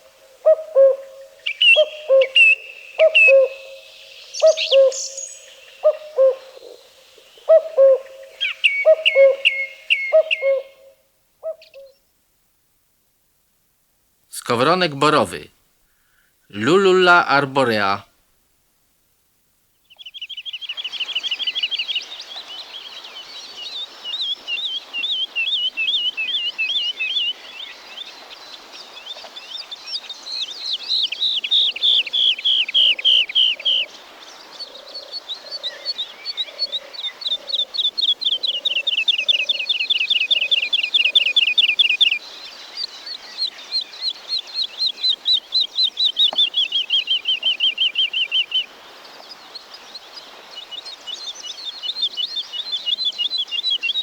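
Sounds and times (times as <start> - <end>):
woodlark singing: 14.4 - 15.5, 16.5 - 18.0.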